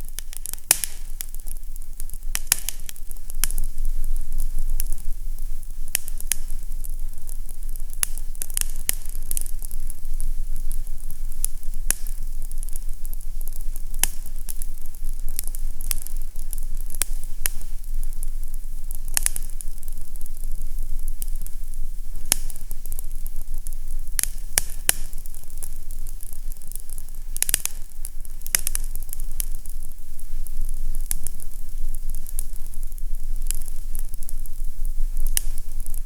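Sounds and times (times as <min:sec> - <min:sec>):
fireplace fire crackling: 0:00.0 - 0:36.0.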